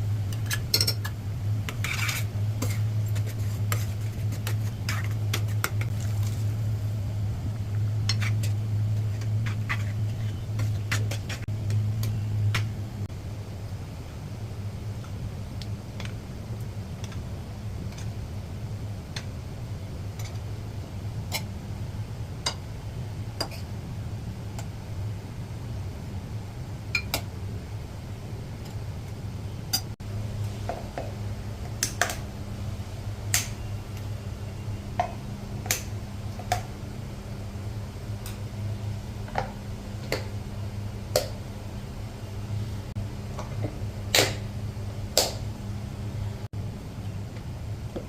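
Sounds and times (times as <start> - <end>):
low hum: 0.0 - 48.0
utensils and dishes clinking: 0.3 - 1.2.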